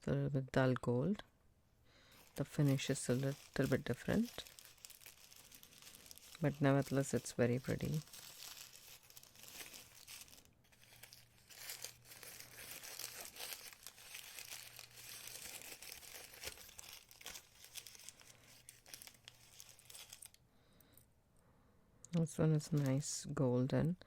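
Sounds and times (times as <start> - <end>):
wrapping crinkling and rustling: 2.1 - 20.4.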